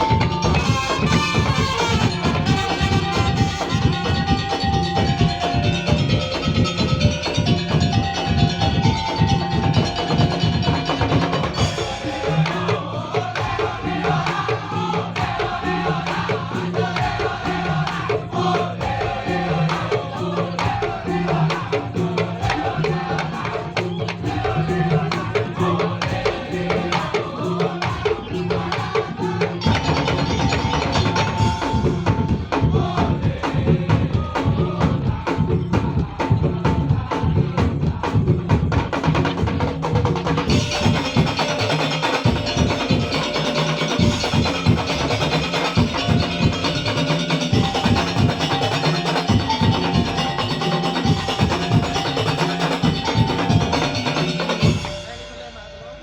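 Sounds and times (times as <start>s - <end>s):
wavering higher melody: 0.0s - 13.0s, 29.6s - 32.8s, 40.4s - 56.0s
drums and wooden percussion: 0.0s - 56.0s
melody line: 40.5s - 56.0s.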